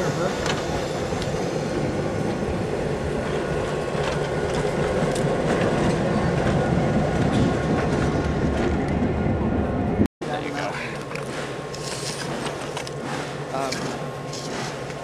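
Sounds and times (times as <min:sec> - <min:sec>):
diesel locomotive engine: 0:00.0 - 0:15.0
train wheels clicking over rail joints: 0:03.2 - 0:09.0, 0:11.0 - 0:15.0.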